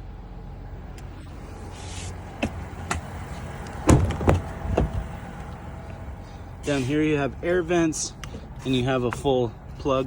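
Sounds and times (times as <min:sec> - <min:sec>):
heavy clunks: 0:03.8 - 0:05.0.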